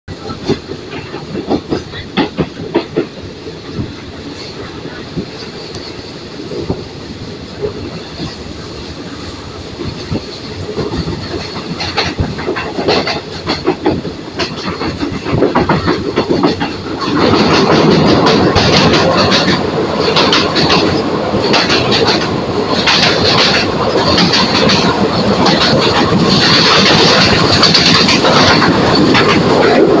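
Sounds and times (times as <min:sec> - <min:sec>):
train rumbling on rails: 0:00.1 - 0:30.0
wheels clicking over rail joints: 0:00.1 - 0:30.0.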